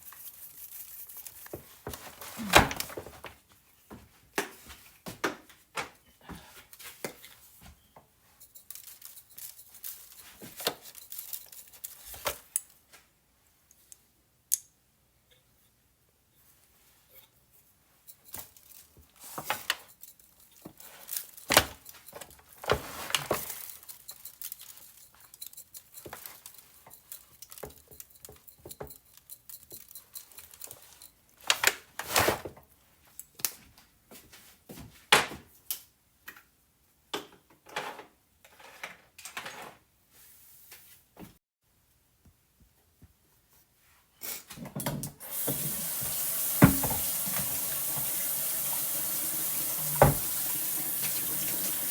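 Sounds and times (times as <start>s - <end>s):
water running into sink: 45.2s - 51.9s.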